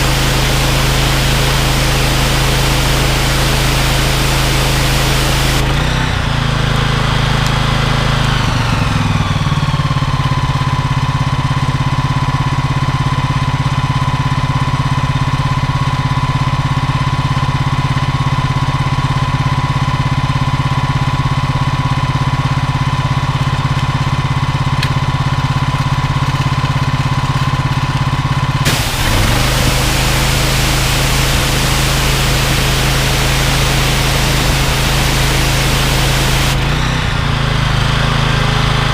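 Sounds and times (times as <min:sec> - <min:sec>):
water spray hiss: 0:00.0 - 0:05.8, 0:28.7 - 0:36.8
petrol engine idling: 0:28.6 - 0:38.0.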